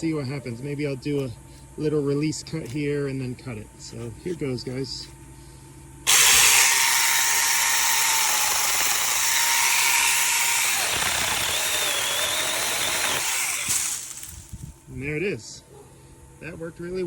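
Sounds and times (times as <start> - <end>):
chainsaw cutting branch: 6.1 - 14.6.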